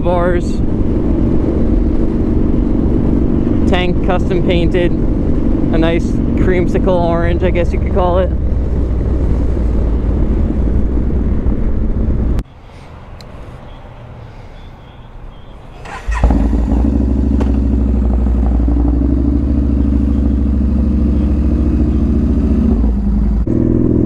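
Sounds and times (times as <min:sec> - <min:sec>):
motorcycle engine running: 0:15.8 - 0:24.0.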